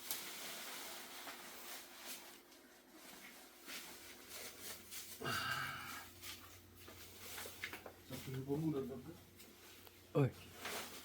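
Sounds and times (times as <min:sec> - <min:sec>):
faint handling rustles and clicks: 0:06.1 - 0:11.0.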